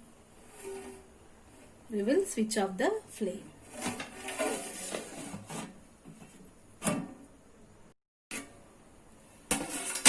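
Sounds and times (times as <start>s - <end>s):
cookware rubbing and scraping: 0.3s - 2.0s, 3.5s - 6.4s, 9.5s - 10.0s.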